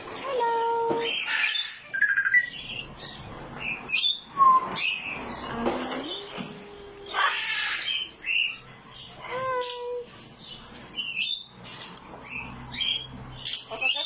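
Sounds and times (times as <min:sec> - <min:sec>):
parrot squawking and chirping: 0:01.0 - 0:14.0.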